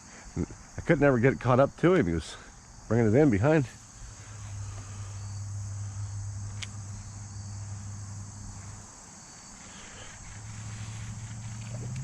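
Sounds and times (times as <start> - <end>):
crickets chirring: 0.0 - 12.0
low steady hum: 2.5 - 12.0.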